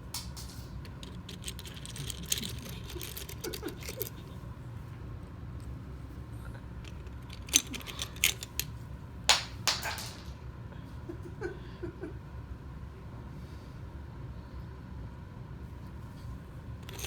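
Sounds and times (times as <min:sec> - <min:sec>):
seashells clattering on floor: 0:09.3 - 0:10.4.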